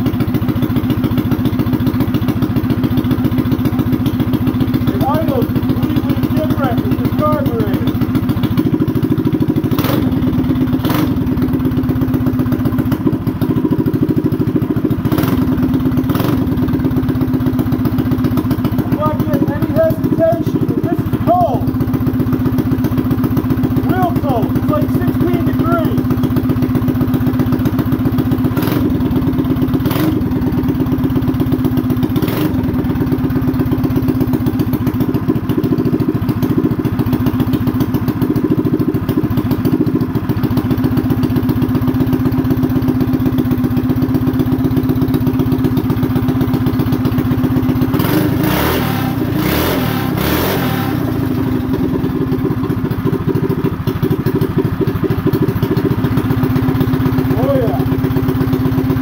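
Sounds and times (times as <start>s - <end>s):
small engine running and revving: 9.7s - 11.4s, 15.0s - 16.7s, 23.9s - 26.0s, 27.7s - 30.6s, 31.5s - 33.1s, 47.6s - 52.2s, 57.3s - 59.0s.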